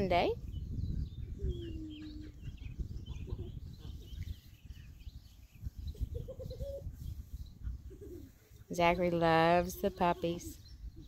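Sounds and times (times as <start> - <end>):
birds chirping: 0.0 - 11.0
low cooing calls: 1.0 - 4.4, 5.9 - 8.6.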